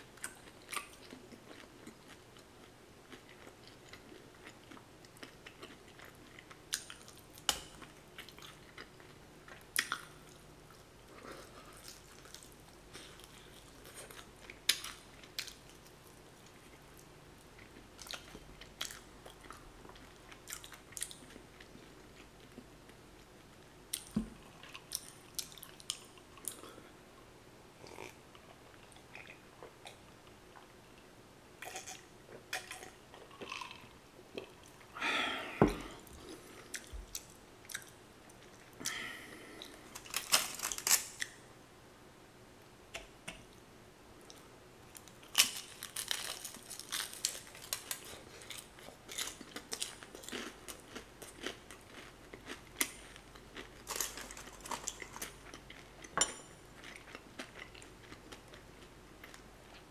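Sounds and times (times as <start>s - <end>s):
crunchy chewing: 31.6s - 34.9s, 44.3s - 59.9s.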